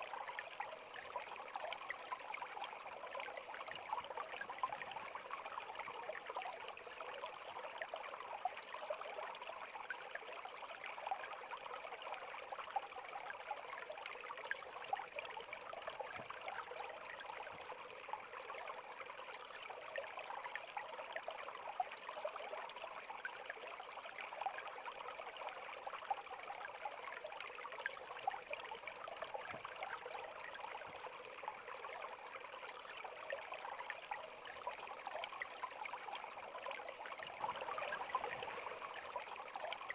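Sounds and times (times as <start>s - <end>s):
river water flowing and splashing: 37.3s - 39.8s.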